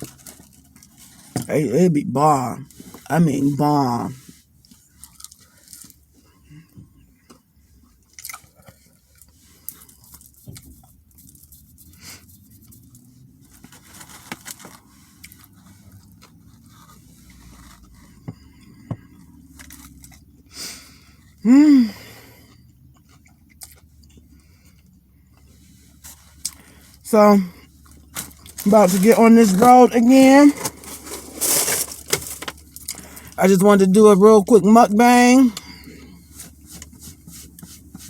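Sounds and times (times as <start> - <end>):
chewing and wet mouth noises: 4.6 - 6.0, 8.0 - 13.0, 22.5 - 25.6
small clicks and crunches: 4.6 - 6.0, 27.8 - 33.4
person humming: 21.4 - 22.0.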